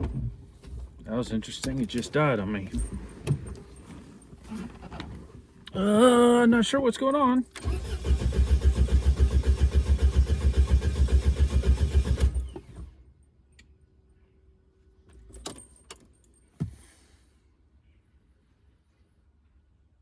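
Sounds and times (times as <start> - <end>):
diesel engine cranking: 7.5 - 13.0.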